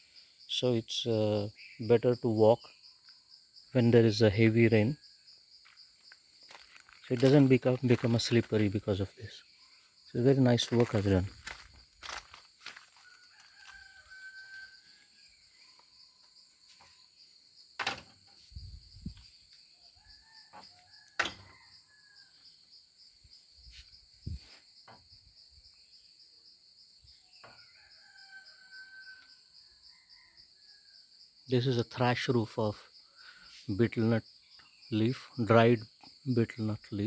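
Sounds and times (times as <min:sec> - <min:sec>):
high buzz of insects: 0:00.0 - 0:37.0
rooster crowing faintly: 0:12.8 - 0:15.4.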